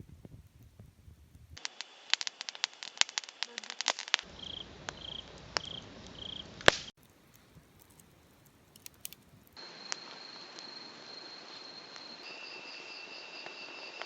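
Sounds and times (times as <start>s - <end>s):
wood fire crackling and popping: 0.0s - 10.8s
insects trilling: 1.6s - 14.0s
high insect drone: 4.2s - 6.7s, 7.8s - 14.0s.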